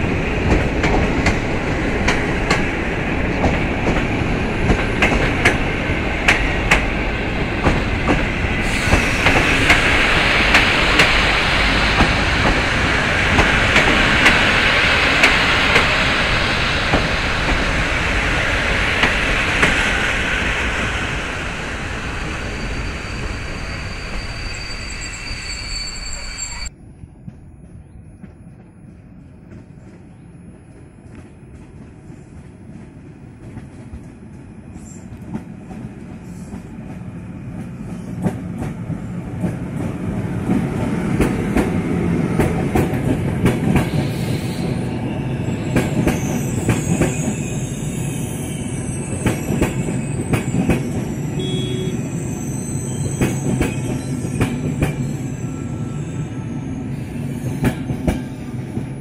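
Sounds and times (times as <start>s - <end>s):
train passing: 0.0s - 59.0s
high squealing: 19.3s - 26.7s, 43.9s - 57.6s.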